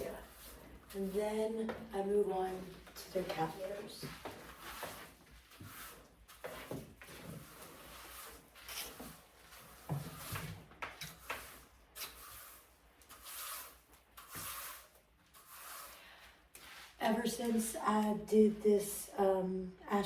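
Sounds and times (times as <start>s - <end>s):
scoop scraping through cat litter: 2.4s - 17.0s.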